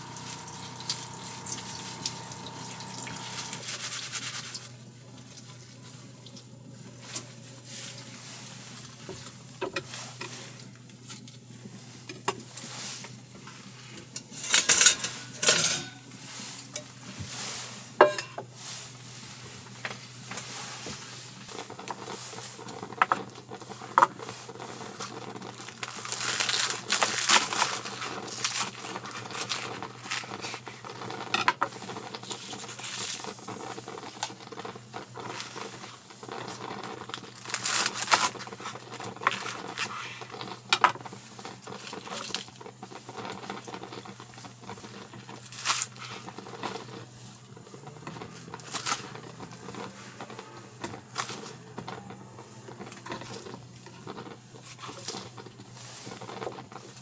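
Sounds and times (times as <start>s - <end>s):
steady low hum: 0.0s - 3.8s
crinkling and tearing: 0.1s - 4.8s, 24.6s - 31.2s, 32.0s - 40.7s, 41.4s - 57.0s.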